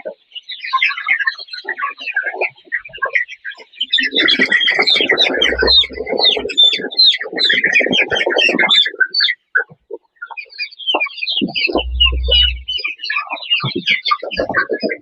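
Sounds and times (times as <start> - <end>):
chicks cheeping: 5.4 - 6.5, 11.8 - 12.7.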